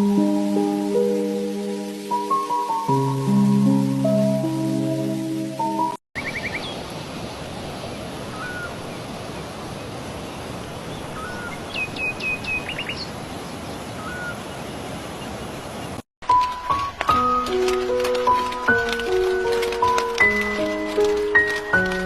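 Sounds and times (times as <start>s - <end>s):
birds calling: 6.2s - 16.0s
steady rushing background noise: 14.0s - 22.0s.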